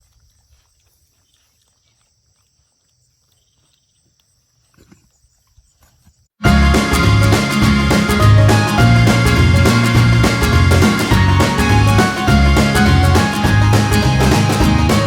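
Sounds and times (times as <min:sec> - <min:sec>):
pig grunting and snuffling: 0:04.6 - 0:06.2
loud music: 0:06.4 - 0:15.0.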